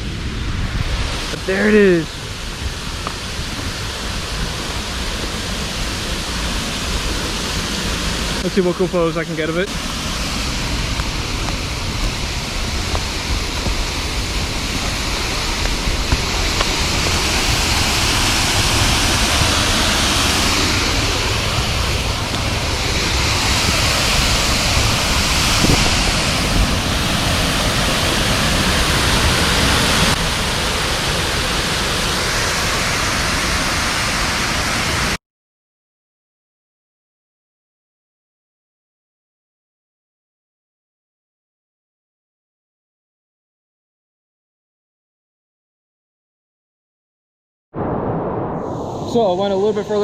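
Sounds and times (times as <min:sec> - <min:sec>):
waterfall rushing: 0:00.0 - 0:35.2.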